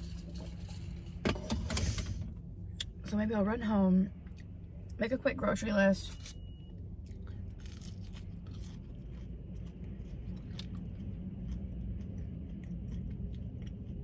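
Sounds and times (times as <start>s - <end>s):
low hum: 0.0s - 14.0s
chewing crunches: 7.0s - 14.0s.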